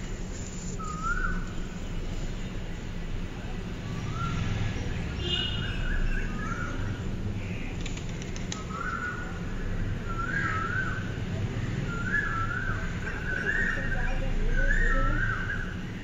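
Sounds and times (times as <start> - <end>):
low rumble of outdoor noise: 0.0 - 16.0
bird song warbling: 0.7 - 1.8.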